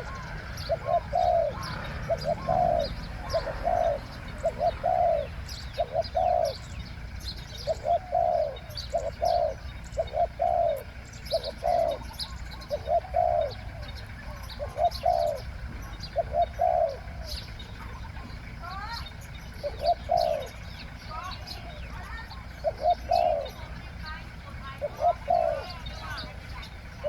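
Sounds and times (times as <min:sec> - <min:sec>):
dove cooing: 0:00.0 - 0:27.0
small birds chirping faintly: 0:00.0 - 0:27.0.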